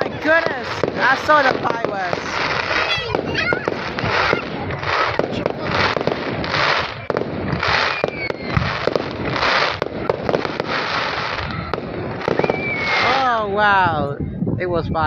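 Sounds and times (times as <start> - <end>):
fireworks hissing bursts: 0.0 - 13.3
fireworks bangs and crackling: 0.0 - 14.1
faint whistle: 7.8 - 8.7, 12.3 - 13.2.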